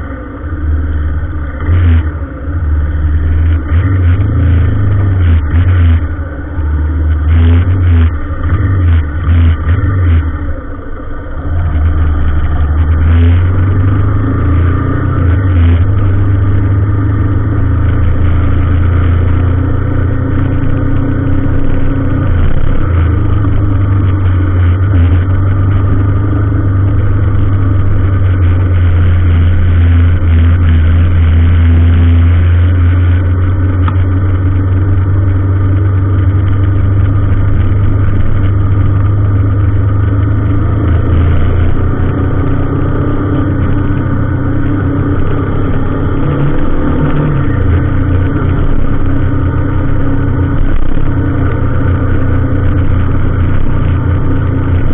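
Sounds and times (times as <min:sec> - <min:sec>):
vehicle engine droning: 0:00.0 - 0:54.9.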